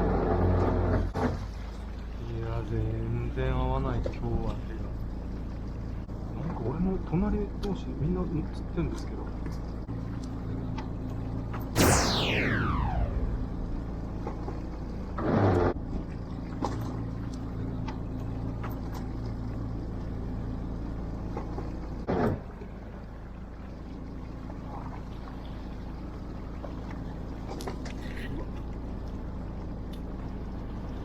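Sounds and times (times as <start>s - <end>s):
boat engine humming: 0.0s - 11.5s, 13.6s - 31.0s
short noisy bursts: 11.8s - 13.9s
falling whine: 11.8s - 14.8s.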